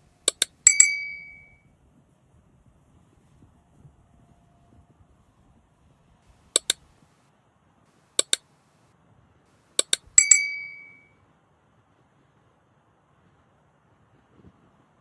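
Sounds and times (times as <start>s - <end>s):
bell-like ringing tone: 0.3s - 1.6s, 9.8s - 11.1s
sharp metallic clinks: 0.3s - 1.6s, 6.6s - 6.8s, 8.2s - 8.4s, 9.8s - 11.0s.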